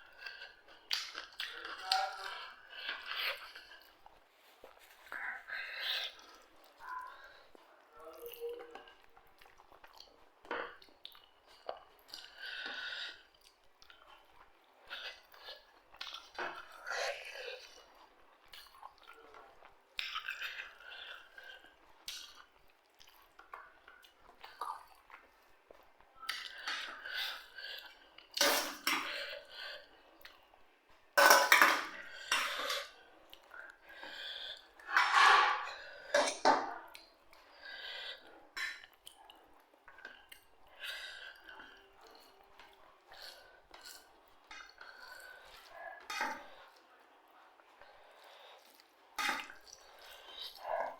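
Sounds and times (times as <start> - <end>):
chewing and crunching food: 0.0 - 50.9
cutlery clinking and scraping plate: 28.4 - 29.3, 31.2 - 33.0, 34.8 - 36.8, 46.0 - 46.6.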